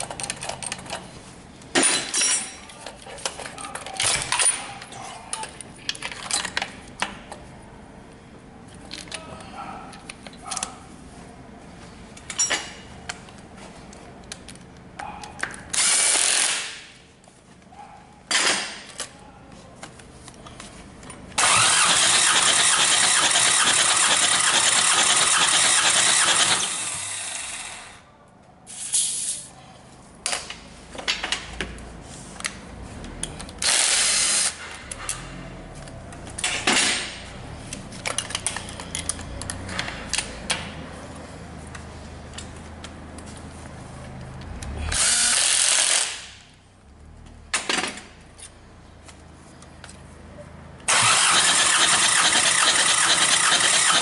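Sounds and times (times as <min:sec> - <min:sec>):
diesel engine cranking on starter: 0:21.4 - 0:27.8, 0:50.8 - 0:54.0.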